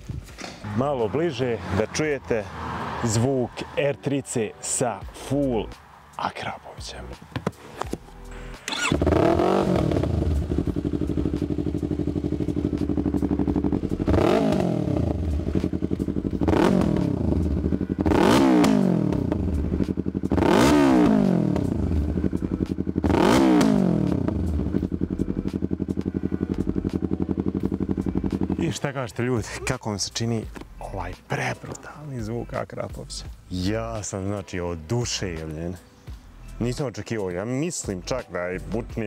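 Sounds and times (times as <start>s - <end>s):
motorcycle engine revving: 8.3s - 29.6s.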